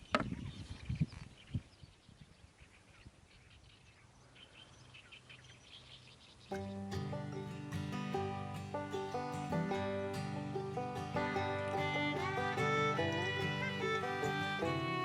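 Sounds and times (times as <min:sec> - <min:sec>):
small birds chirping: 0:00.0 - 0:07.0.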